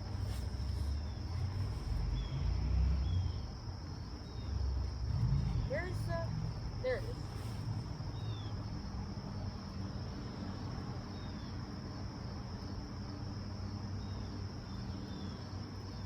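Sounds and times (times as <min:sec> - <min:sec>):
crickets trilling: 0:00.0 - 0:16.0
low rumble: 0:04.5 - 0:08.9.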